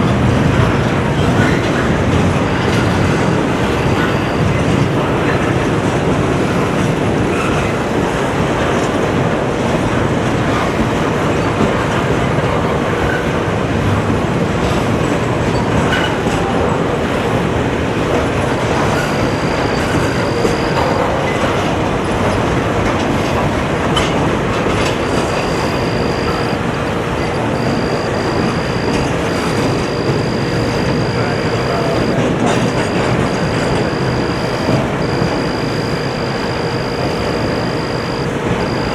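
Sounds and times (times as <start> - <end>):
train wheels clacking on rails: 0.0 - 38.9
high wheel squeal: 18.7 - 21.7, 24.8 - 38.9.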